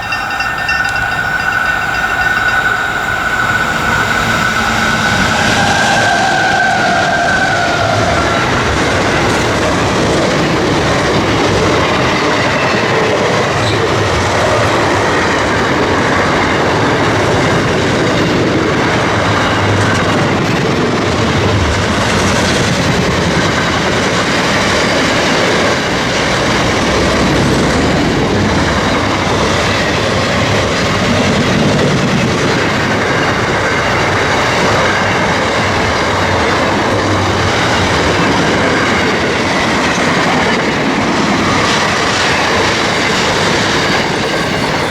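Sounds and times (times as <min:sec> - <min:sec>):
high steady squeal: 0:00.0 - 0:09.4, 0:41.0 - 0:44.9
train wheels rumbling on rail: 0:00.0 - 0:44.9.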